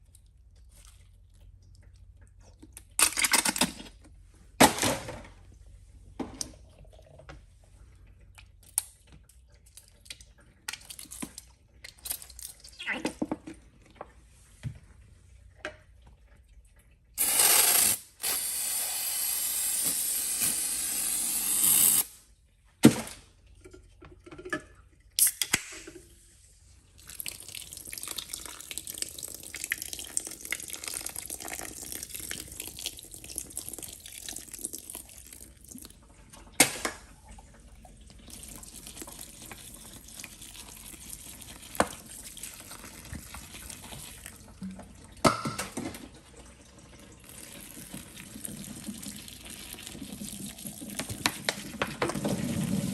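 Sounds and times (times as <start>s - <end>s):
toilet tank refilling with hiss: 17.2s - 22.2s, 46.2s - 52.9s
toilet flushing: 29.7s - 52.9s.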